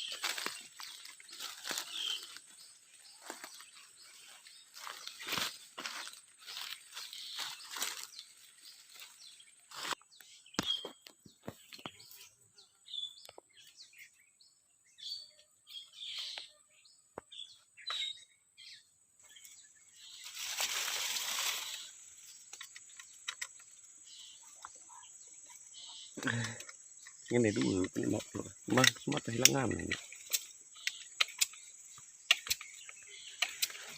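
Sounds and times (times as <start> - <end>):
rustling in dry scrub: 0.0 - 10.0, 20.0 - 22.5.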